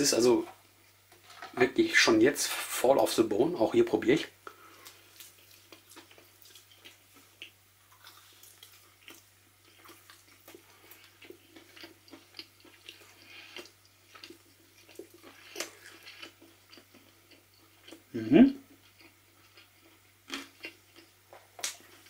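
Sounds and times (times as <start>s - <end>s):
person chewing: 4.4s - 22.0s.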